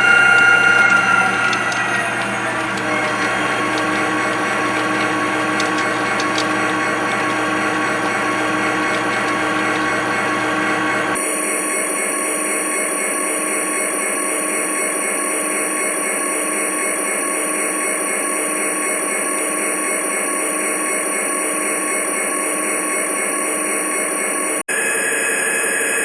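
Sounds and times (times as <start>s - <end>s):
model train motor whine: 0.0s - 11.2s.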